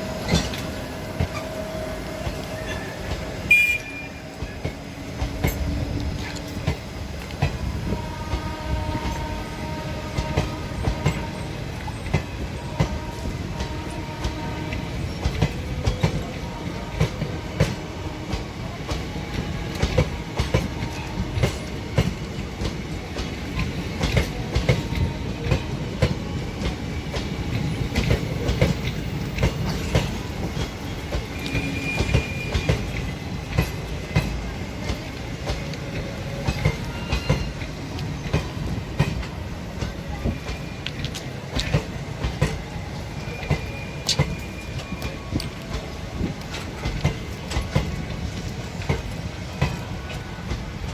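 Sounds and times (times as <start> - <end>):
train coaches rumbling: 0.0 - 50.9
high wheel squeals: 31.3 - 33.1.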